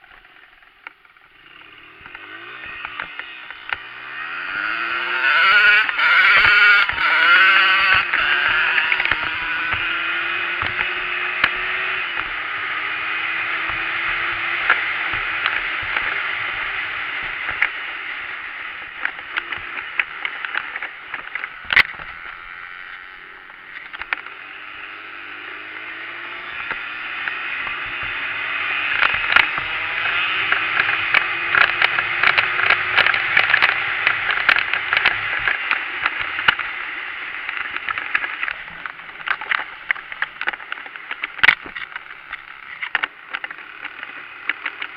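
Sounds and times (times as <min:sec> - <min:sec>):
dirt bike engine running: 0:00.0 - 0:44.9
scattered clicks and knocks: 0:04.7 - 0:24.3, 0:28.8 - 0:44.9.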